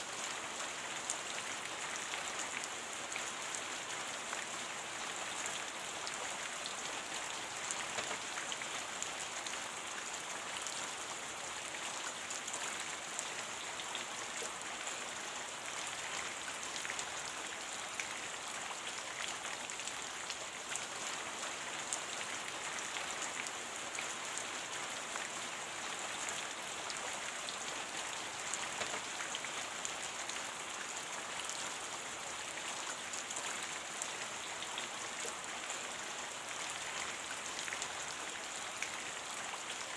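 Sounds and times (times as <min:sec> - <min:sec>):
steady rain hiss: 0:00.0 - 0:39.9
raindrops pattering: 0:07.7 - 0:08.4, 0:28.4 - 0:29.4.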